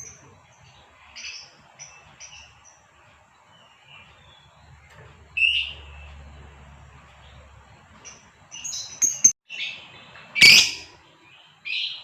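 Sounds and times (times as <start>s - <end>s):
lovebird chirping: 7.2s - 12.0s.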